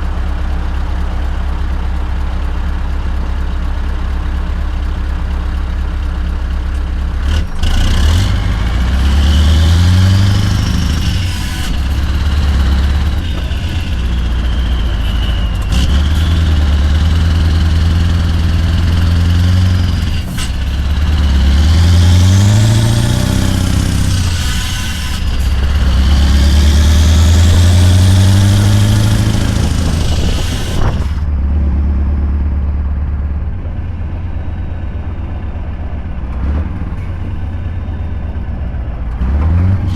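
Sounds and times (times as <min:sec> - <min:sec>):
diesel truck engine: 0:00.0 - 0:39.9
high turbo whistle: 0:09.8 - 0:31.2.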